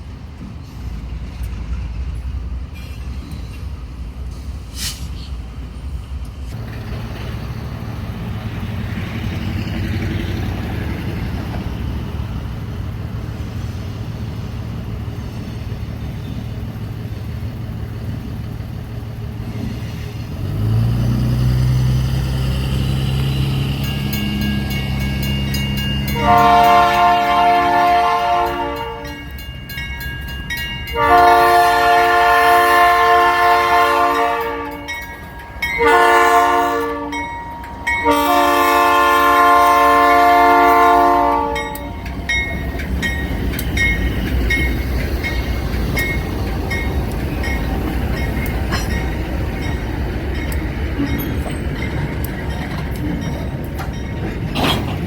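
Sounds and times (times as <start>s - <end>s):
locomotive engines rumbling: 0.0s - 55.0s
locomotive air horn blasts: 26.1s - 29.4s, 30.9s - 35.0s, 35.6s - 42.1s.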